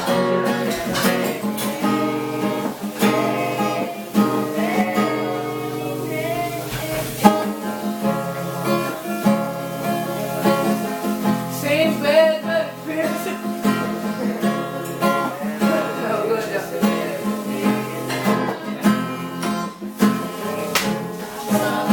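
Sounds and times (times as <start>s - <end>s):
acoustic guitar strumming chords: 0.0s - 21.9s
person singing a pop ballad: 0.0s - 21.9s.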